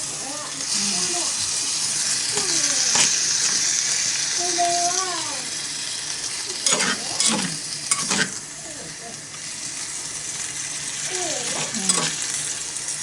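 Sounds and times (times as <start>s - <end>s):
hotpot sizzling: 0.0s - 13.0s.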